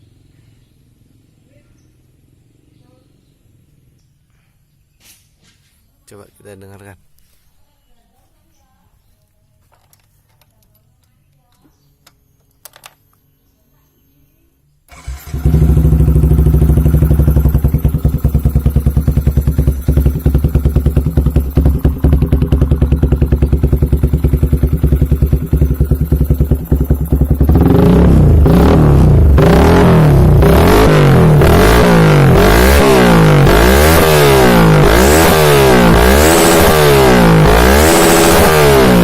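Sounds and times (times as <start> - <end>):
motorcycle engine idling and revving: 0.0 - 4.4, 14.9 - 39.0.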